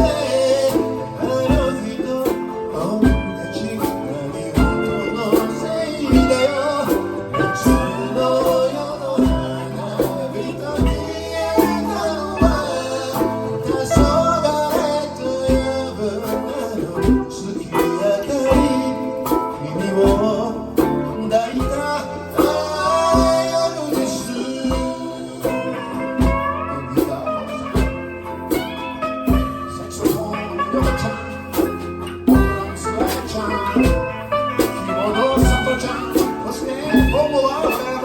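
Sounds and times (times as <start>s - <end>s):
guitar lead with bending notes: 0.0s - 38.0s
live blues band: 0.0s - 38.0s.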